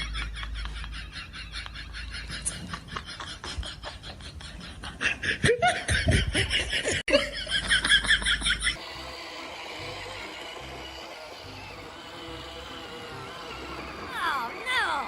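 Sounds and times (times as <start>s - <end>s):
person laughing hard: 0.0s - 8.8s.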